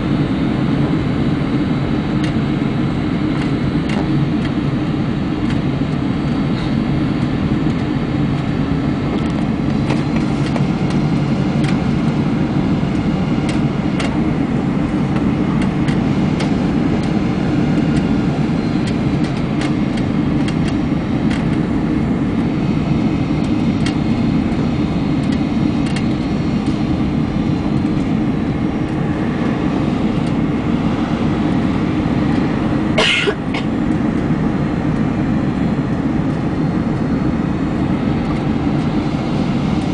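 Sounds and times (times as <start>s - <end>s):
airplane cabin rumble: 0.0s - 39.9s
faint rattles and clicks: 25.2s - 26.8s.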